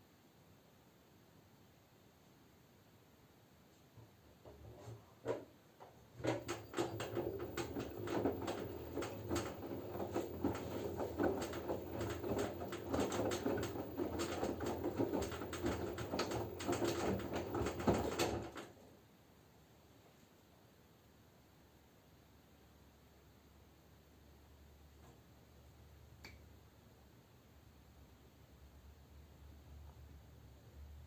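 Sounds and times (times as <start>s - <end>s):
laundry and water sloshing: 6.2s - 18.6s.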